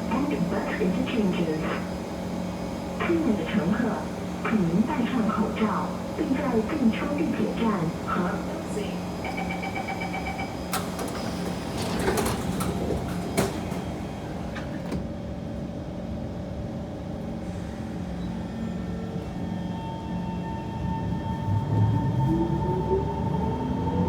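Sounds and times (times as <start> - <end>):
train low hum: 0.0 - 24.0
sliding doors shutting: 10.5 - 15.1.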